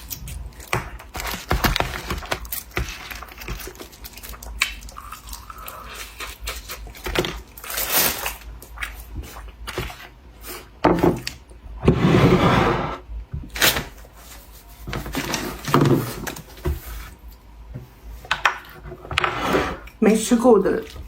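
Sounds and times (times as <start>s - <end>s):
chewing and biting: 0.0s - 9.6s.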